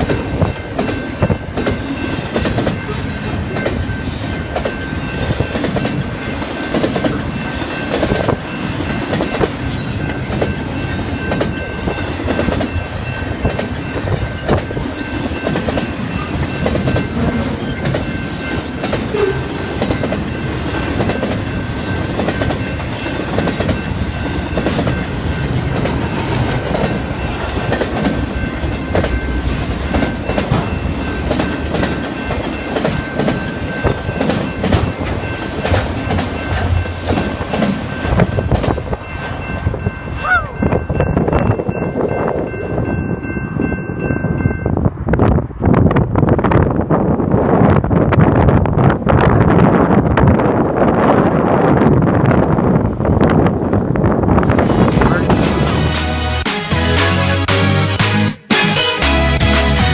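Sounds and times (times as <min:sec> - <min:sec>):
train wheels clattering over rail joints: 0:00.0 - 0:39.4.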